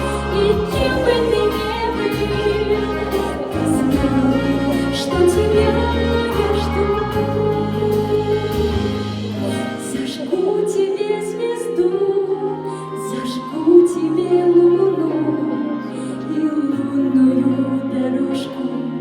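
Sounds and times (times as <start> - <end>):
instrumental accompaniment: 0.0 - 13.0
woman singing: 0.0 - 19.0.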